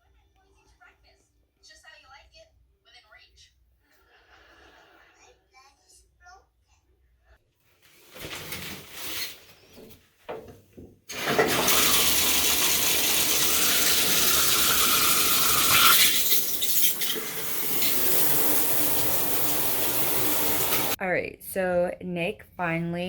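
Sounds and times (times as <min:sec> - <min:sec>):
rush of running water: 0:17.2 - 0:21.0.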